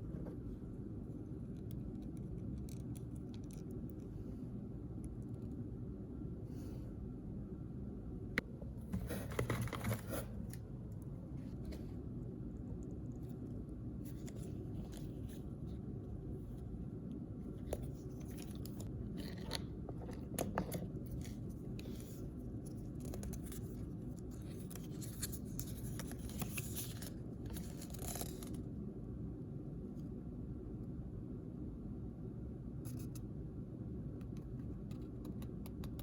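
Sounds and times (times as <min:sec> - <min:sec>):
steady low hum: 0:00.0 - 0:36.0
small sharp clicks and scrapes: 0:01.2 - 0:04.1
packaging crinkling and rustling: 0:17.7 - 0:28.6.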